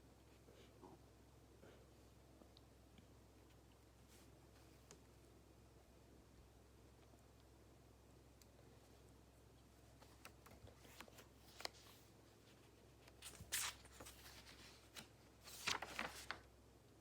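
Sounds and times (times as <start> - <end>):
faint low room hum: 0.0 - 17.0
paper rustling on desk: 10.0 - 16.5.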